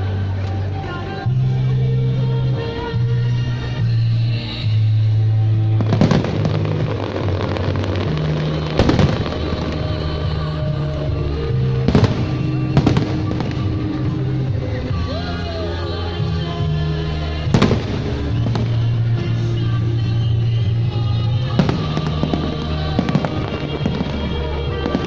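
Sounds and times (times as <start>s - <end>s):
loud music: 0.0s - 25.0s
fireworks bangs: 5.7s - 15.1s, 16.2s - 25.0s.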